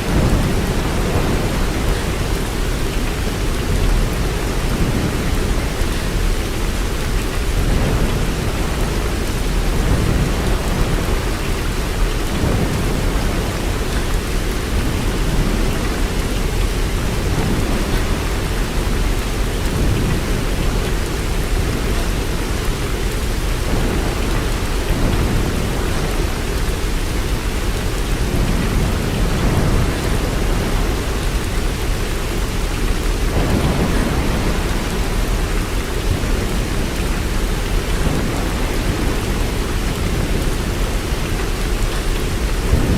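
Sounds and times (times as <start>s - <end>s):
steady rain: 0.0s - 42.9s.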